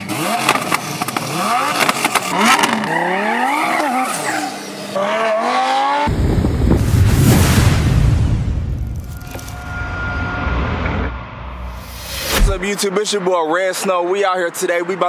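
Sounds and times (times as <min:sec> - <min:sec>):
car engine revving with crackles: 0:00.0 - 0:07.4.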